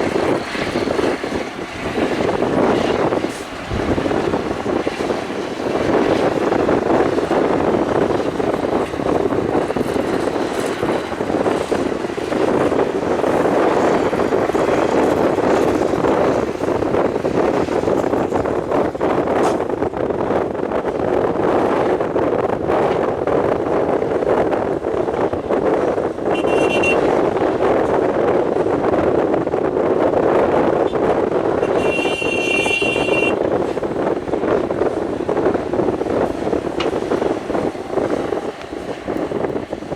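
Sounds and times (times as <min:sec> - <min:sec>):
excavator diesel engine under load: 0:00.0 - 0:20.1, 0:31.2 - 0:39.9
high steady tone: 0:31.7 - 0:33.5.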